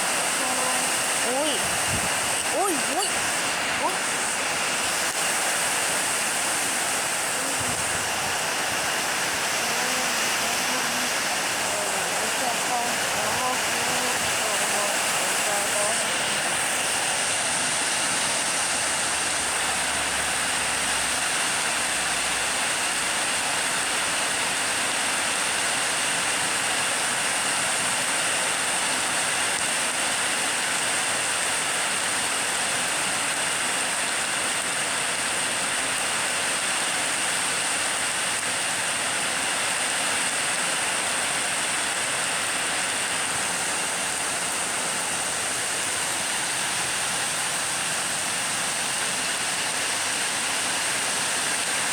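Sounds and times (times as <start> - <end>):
strong wind: 0.0 - 18.8
heavy rain: 0.0 - 51.9.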